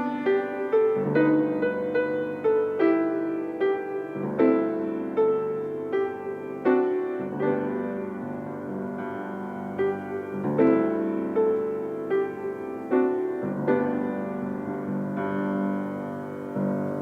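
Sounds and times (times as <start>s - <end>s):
slow gentle piano: 0.0s - 17.0s.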